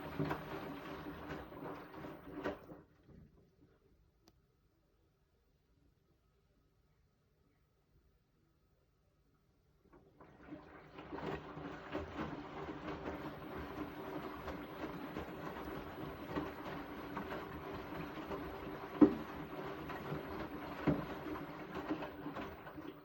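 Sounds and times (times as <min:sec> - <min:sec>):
washing machine running: 0:00.0 - 0:02.9, 0:10.0 - 0:23.0.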